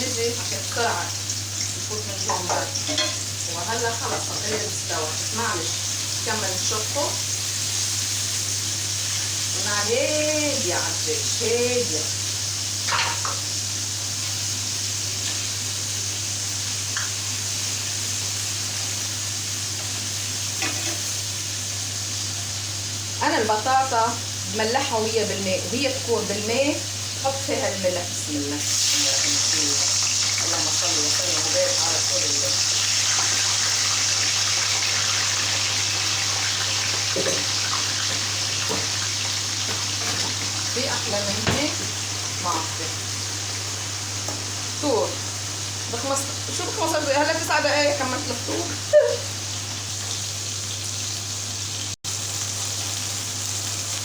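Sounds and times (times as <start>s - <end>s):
tap water running: 0.0s - 7.4s, 27.5s - 52.5s
chicken sizzling in a pan: 0.0s - 54.0s.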